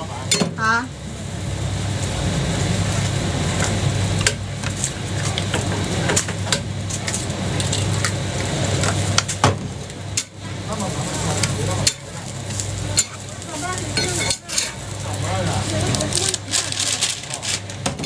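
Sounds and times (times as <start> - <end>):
metal utensils scraping a griddle: 10.9 - 17.8.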